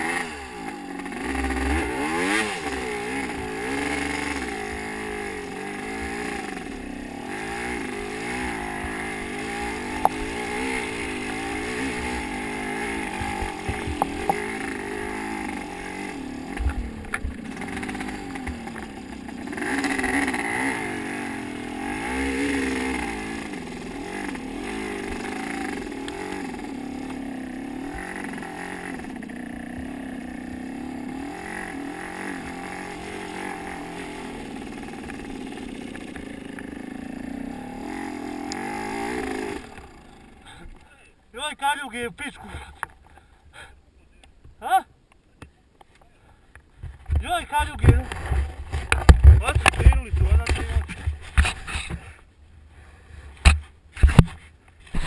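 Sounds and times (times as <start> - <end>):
motocross bike engine revving: 0.0 - 43.7, 46.8 - 55.0
sharp knocks and clatters: 46.6 - 52.2, 53.4 - 55.0.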